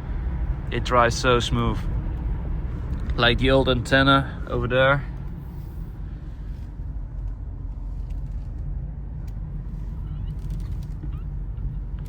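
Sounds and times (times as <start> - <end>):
car engine and tyres rumbling: 0.0 - 12.0
faint short squeaks: 9.9 - 11.7.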